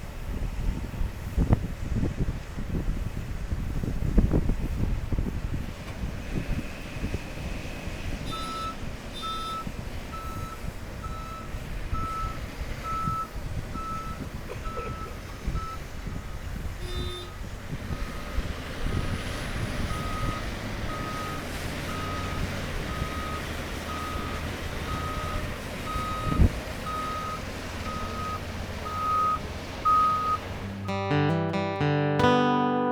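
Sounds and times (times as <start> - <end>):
diesel engines rumbling: 0.0 - 31.9
backup alarm beeping: 8.3 - 18.3, 19.9 - 31.5.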